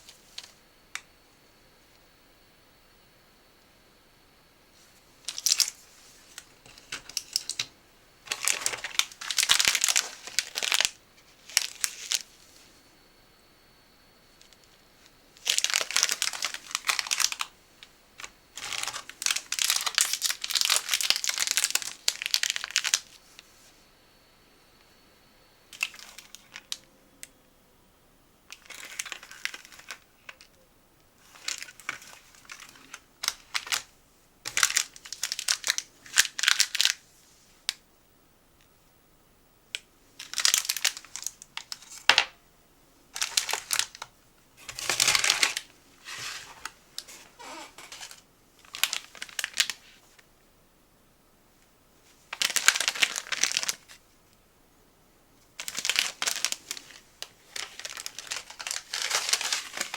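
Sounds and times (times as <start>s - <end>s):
plastic packaging crinkling: 5.2s - 12.4s, 15.4s - 23.5s, 25.8s - 26.9s, 28.5s - 30.4s, 31.2s - 33.9s, 34.5s - 37.0s, 40.2s - 42.3s, 43.1s - 50.2s, 52.2s - 54.0s, 55.5s - 59.9s.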